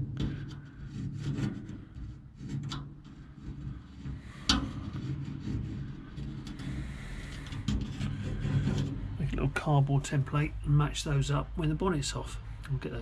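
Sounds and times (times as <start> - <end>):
cardboard rubbing and scraping: 0.0 - 9.6.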